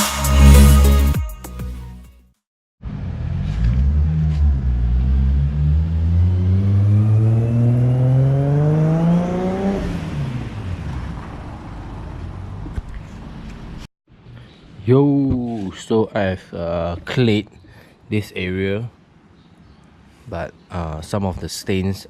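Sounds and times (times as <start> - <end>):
vehicle engine accelerating: 2.8 - 13.8.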